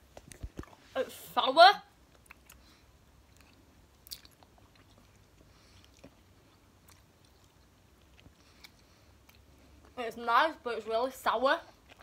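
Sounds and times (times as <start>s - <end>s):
faint chewing with mouth clicks: 0.1s - 0.9s, 2.0s - 10.0s, 11.6s - 12.0s.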